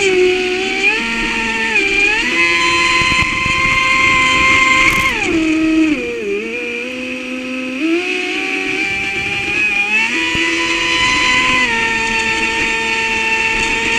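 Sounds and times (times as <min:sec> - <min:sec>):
electric motor whining: 0:00.1 - 0:07.1.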